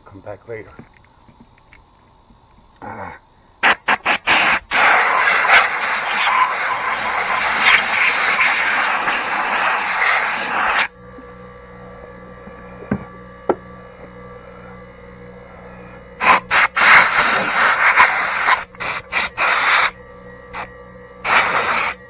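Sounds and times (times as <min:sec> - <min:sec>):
faint steady hum: 0:00.0 - 0:22.0
compressed air blowgun hissing: 0:03.6 - 0:10.9, 0:16.2 - 0:20.0, 0:20.6 - 0:22.0.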